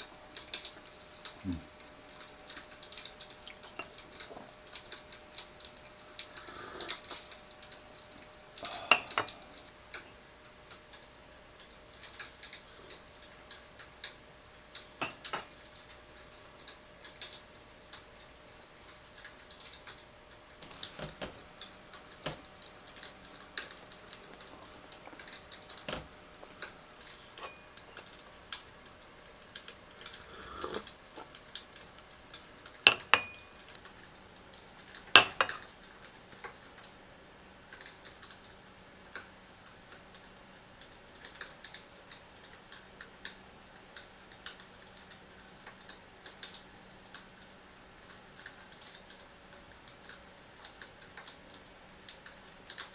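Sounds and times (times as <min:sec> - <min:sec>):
tableware clinking and knocking: 0:08.9 - 0:09.4, 0:15.0 - 0:15.5, 0:27.1 - 0:28.4, 0:32.9 - 0:33.6, 0:35.2 - 0:35.6.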